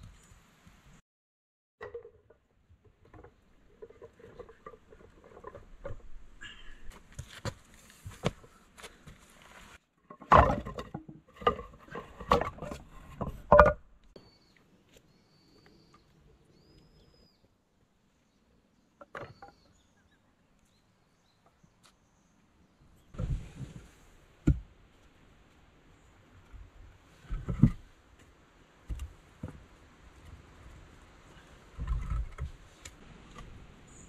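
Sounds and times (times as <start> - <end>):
logs knocking onto woodpile: 10.1 - 13.8
faint bird chirps: 14.2 - 17.5.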